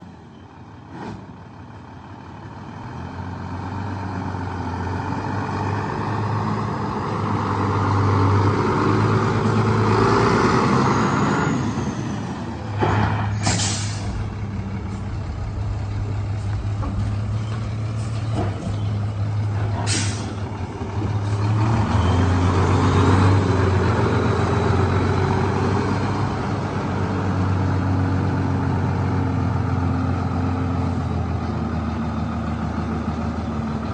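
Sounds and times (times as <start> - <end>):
diesel truck engine running: 0.0 - 33.9
air brake hiss: 13.3 - 14.2, 19.8 - 20.4.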